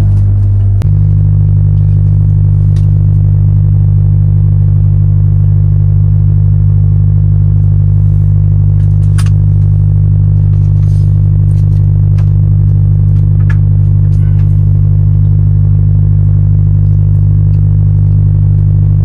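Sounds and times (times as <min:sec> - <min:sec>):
truck engine idling: 0:00.0 - 0:03.5, 0:07.6 - 0:18.3.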